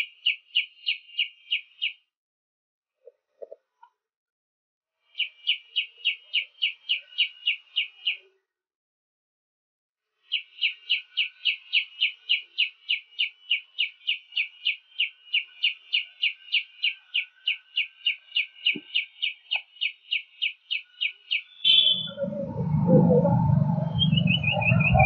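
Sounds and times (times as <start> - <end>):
songbird call notes: 5.2 - 8.3, 10.3 - 25.0.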